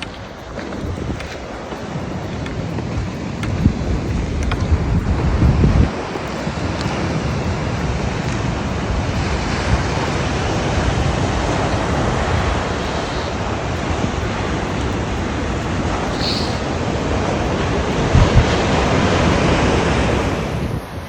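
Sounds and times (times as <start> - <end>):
ocean surf washing onto beach: 0.0 - 21.0
wind buffeting microphone: 0.0 - 21.0.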